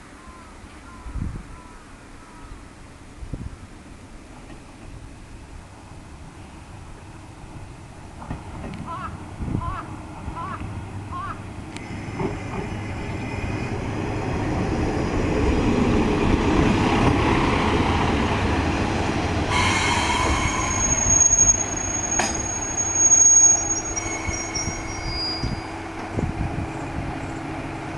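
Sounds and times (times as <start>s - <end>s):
diesel train rumbling: 2.7s - 27.9s
wheels and brakes squealing: 19.5s - 25.9s.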